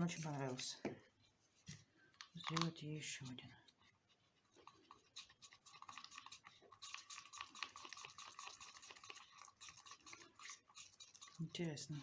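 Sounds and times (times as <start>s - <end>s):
stick stirring resin in cup: 0.0s - 12.0s.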